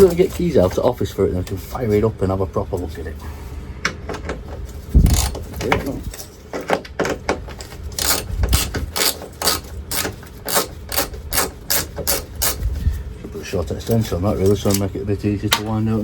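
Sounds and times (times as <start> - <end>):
ratchet wrench clicking: 5.0 - 5.4, 8.0 - 12.6.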